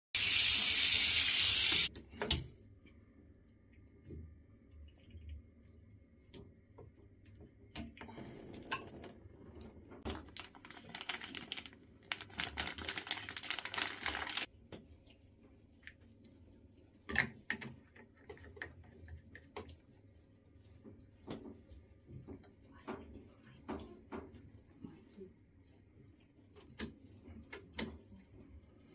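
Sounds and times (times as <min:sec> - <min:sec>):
water running: 0:00.1 - 0:01.9, 0:07.9 - 0:16.4.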